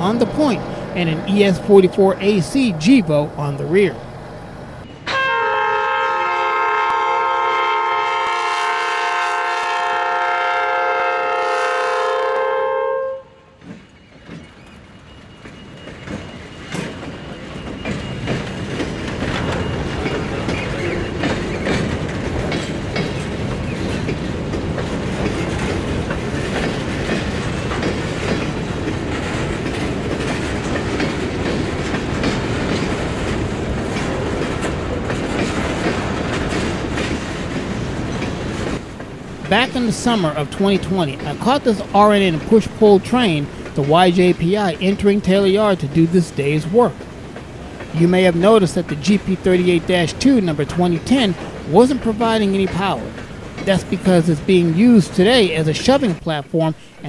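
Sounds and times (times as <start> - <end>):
freight train rumbling past: 0.0 - 57.0
locomotive horn: 5.0 - 13.6
wheels clicking over rail joints: 13.6 - 57.0.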